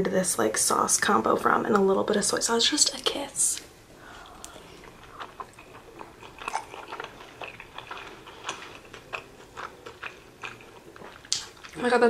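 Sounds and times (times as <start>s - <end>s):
person chewing food: 4.0s - 11.8s.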